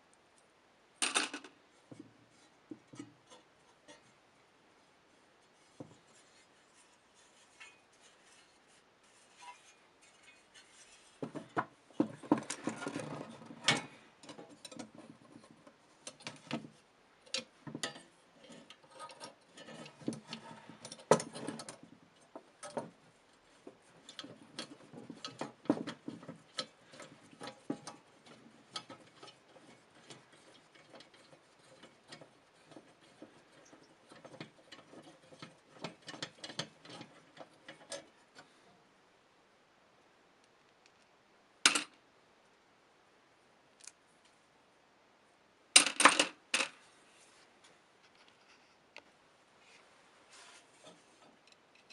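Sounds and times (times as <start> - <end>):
scraping: 5.4 - 38.7, 49.6 - 51.9.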